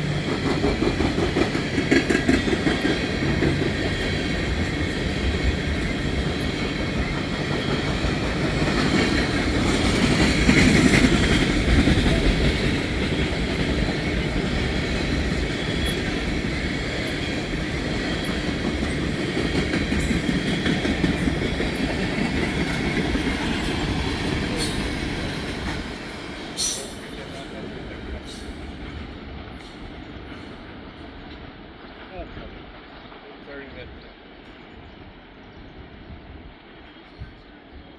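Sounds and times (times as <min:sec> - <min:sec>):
clickety-clack over rail joints: 0:00.0 - 0:34.6
train wheels rumbling on rail: 0:00.0 - 0:37.9.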